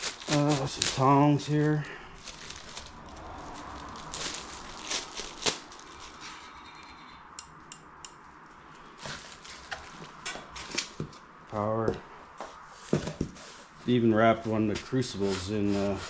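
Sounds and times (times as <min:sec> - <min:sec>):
wrapping rustling: 0:00.0 - 0:06.6, 0:08.2 - 0:11.3.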